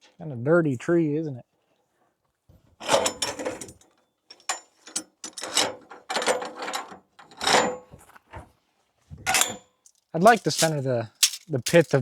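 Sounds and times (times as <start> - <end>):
metal ratchet clicking: 10.2 - 12.0.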